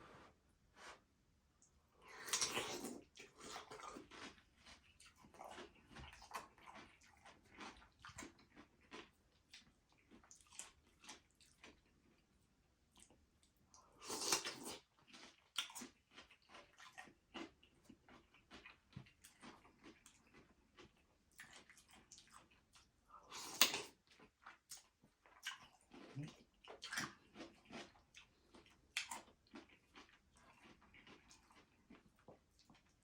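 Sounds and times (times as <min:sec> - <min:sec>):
person chewing with wet mouth sounds: 0:01.6 - 0:33.0.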